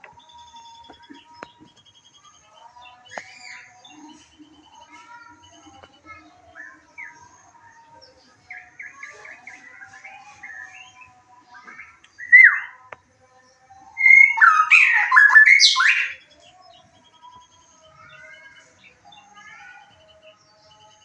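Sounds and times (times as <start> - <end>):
songbird whistles and trills: 8.4 - 12.9, 13.8 - 21.0.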